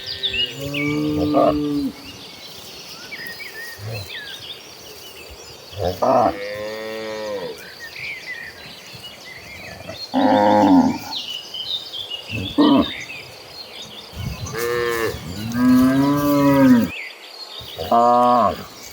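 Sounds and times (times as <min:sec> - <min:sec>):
cattle mooing: 0:09.7 - 0:11.1, 0:14.4 - 0:16.9.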